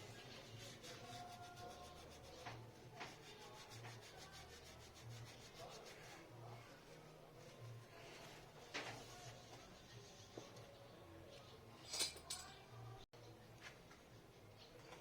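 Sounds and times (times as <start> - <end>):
soft rubbing: 0.0 - 10.8.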